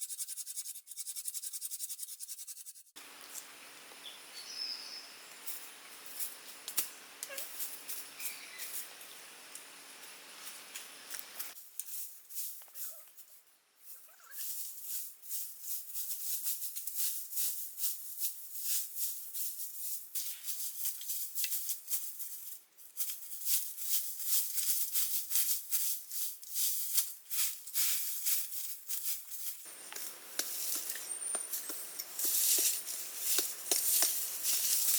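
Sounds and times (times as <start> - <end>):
dry rustling and crackling: 10.4 - 34.9.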